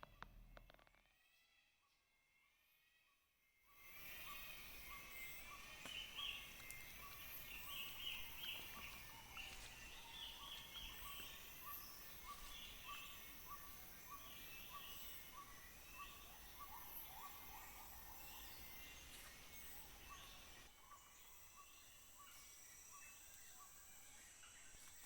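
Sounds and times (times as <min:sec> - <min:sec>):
high drone of insects: 0:03.8 - 0:25.0
higher chirping calls: 0:04.0 - 0:19.0.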